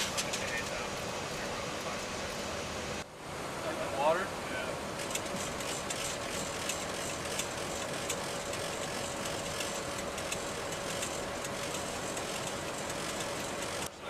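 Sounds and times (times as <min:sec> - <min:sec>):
jet cabin rush: 0:00.0 - 0:03.0
steady hum tone: 0:00.0 - 0:14.0.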